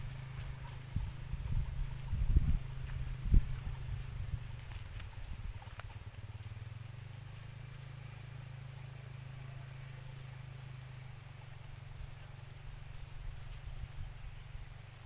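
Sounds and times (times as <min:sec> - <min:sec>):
faint high insect-like tone: 0:00.0 - 0:15.0
motor droning: 0:00.0 - 0:15.0.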